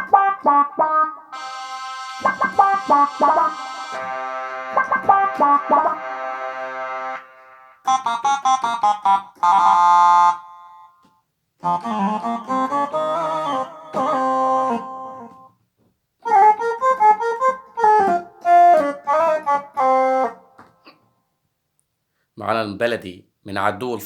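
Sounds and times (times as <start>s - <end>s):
keyboard chord and melodic phrases: 0.0s - 10.9s.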